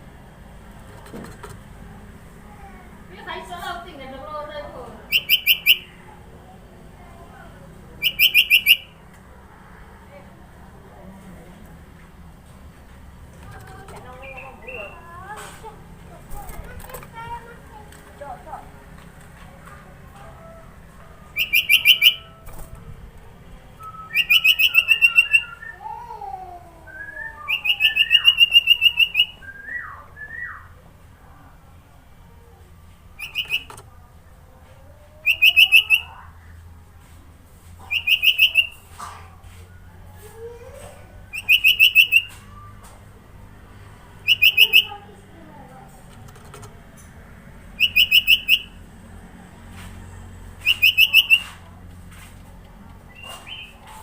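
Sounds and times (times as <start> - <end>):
bird rapid trill: 5.1 - 5.9, 8.0 - 8.9, 21.3 - 22.5, 24.0 - 25.7, 27.4 - 29.4, 33.2 - 33.8, 37.9 - 38.8, 41.3 - 42.5, 44.2 - 45.0, 47.8 - 48.8, 50.6 - 51.6, 53.1 - 53.8
sliding whistled bird notes: 23.8 - 25.8, 33.2 - 33.7.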